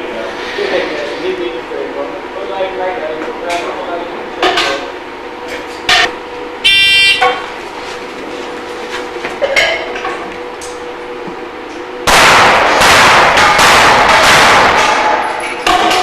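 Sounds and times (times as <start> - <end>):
electronic beep: 6.6 - 7.2
rapid pistol fire: 12.1 - 15.4.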